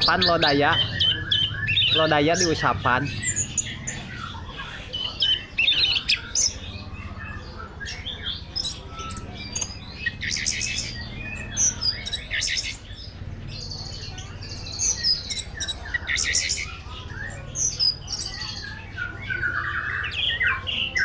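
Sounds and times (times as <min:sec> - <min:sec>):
bird singing whistles and trills: 0:00.0 - 0:21.0.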